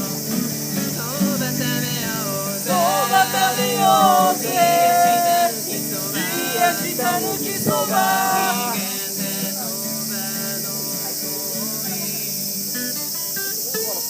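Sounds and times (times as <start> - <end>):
acoustic guitar strumming: 0.0 - 14.0
person singing: 0.9 - 12.6.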